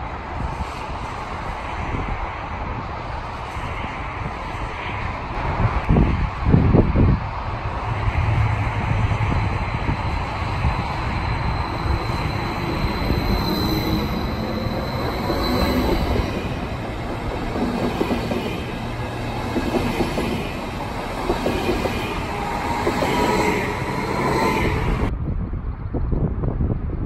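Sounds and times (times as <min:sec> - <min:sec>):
train wheels rumbling on rails: 0:00.0 - 0:25.2.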